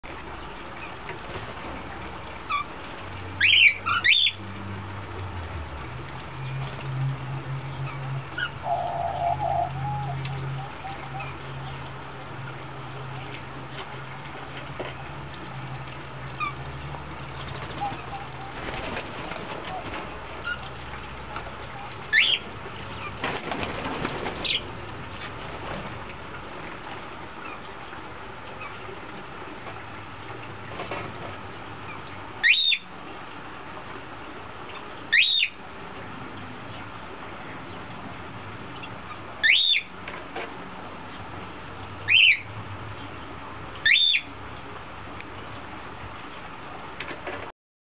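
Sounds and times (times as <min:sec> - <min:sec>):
low steady hum: 0:00.0 - 0:47.5
birds squawking harshly: 0:03.4 - 0:04.4, 0:08.4 - 0:11.4, 0:22.1 - 0:22.4, 0:24.1 - 0:24.6, 0:32.4 - 0:32.9, 0:35.1 - 0:35.6, 0:39.4 - 0:39.9, 0:42.1 - 0:42.5, 0:43.8 - 0:44.3
wings flapping: 0:17.3 - 0:20.8, 0:23.0 - 0:26.1.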